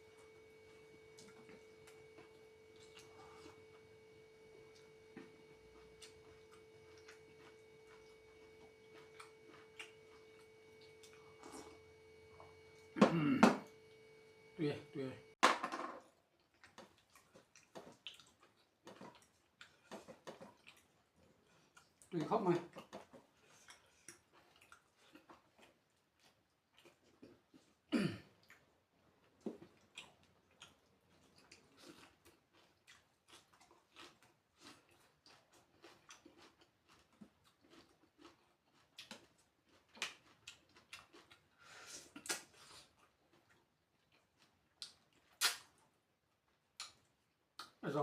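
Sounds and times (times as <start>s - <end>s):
person chewing: 0.2s - 13.4s, 16.4s - 47.8s
small mouth clicks: 44.8s - 45.7s, 46.8s - 47.0s, 47.6s - 47.8s.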